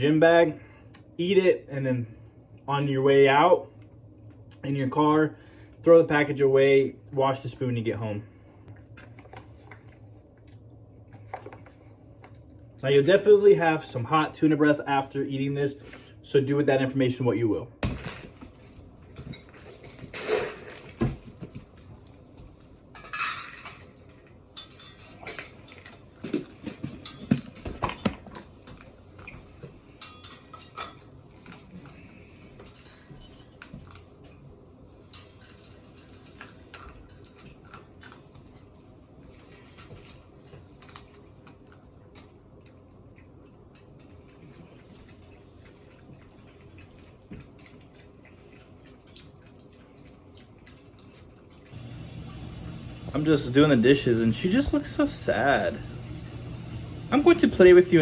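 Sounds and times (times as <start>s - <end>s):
dishes and cutlery clinking: 18.0s - 28.5s, 29.2s - 34.0s, 35.0s - 38.2s.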